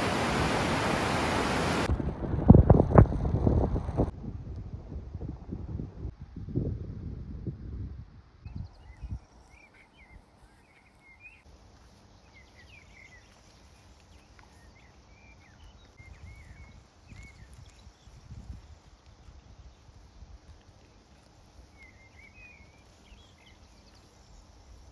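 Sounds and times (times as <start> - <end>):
quiet steady hiss: 0.0 - 1.9
wind gusts on microphone: 0.0 - 9.3, 16.0 - 20.6
small birds chirping: 8.5 - 20.2, 20.9 - 24.9.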